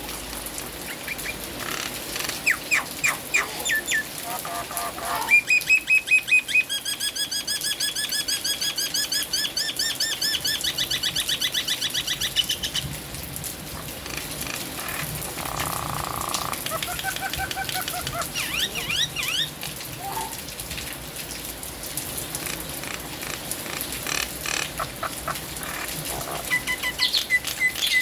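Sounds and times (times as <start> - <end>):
rain hissing: 0.0 - 6.7, 12.2 - 28.0
myna calling: 0.9 - 6.6, 13.8 - 20.4, 23.7 - 28.0.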